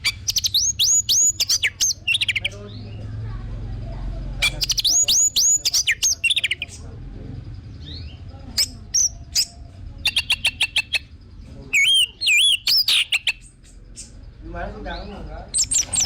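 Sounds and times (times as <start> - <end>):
thrush singing whistled phrases: 0.0 - 2.6, 4.4 - 6.8, 8.6 - 11.1, 11.8 - 13.6, 15.5 - 16.0.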